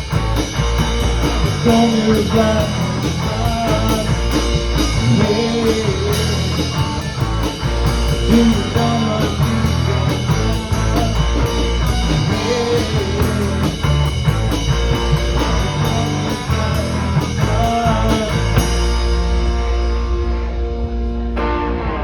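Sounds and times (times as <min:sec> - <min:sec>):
drum kit beat on cymbals: 0:00.0 - 0:20.0
bass guitar: 0:00.0 - 0:22.0
electric guitar: 0:00.0 - 0:22.0.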